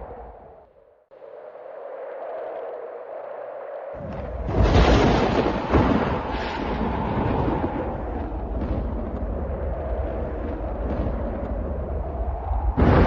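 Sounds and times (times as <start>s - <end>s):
thunder crack and rumble: 4.0s - 13.0s.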